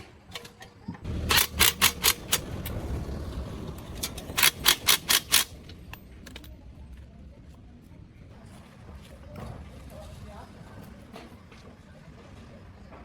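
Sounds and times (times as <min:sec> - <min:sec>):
low rumble: 0:01.0 - 0:04.5.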